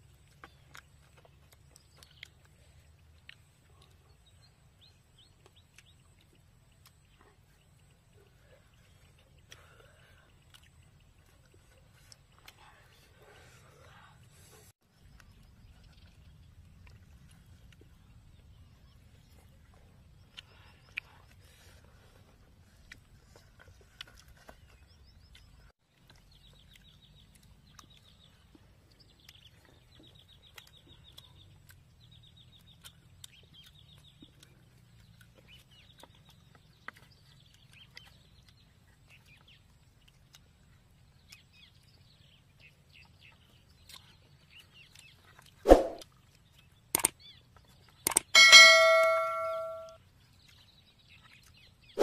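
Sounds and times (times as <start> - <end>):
birds chirping: 0.0 - 52.0.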